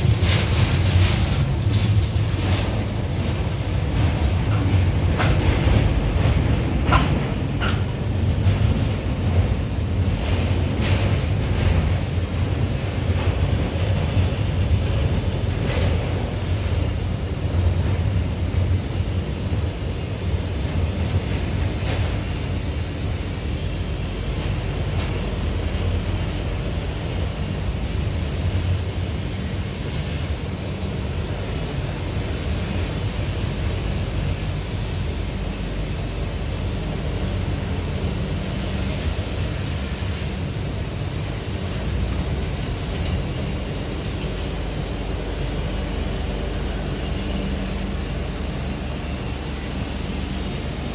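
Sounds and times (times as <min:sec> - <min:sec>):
passenger train rumble inside coach: 0:00.0 - 0:50.9.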